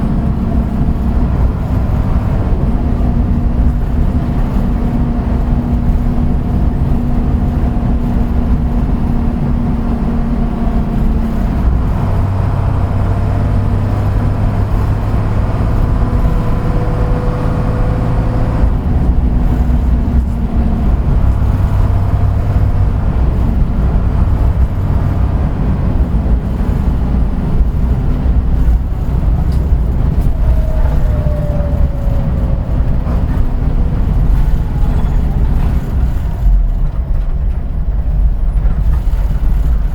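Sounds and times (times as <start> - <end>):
bus engine running: 0.0 - 39.9
falling whine: 27.7 - 36.9.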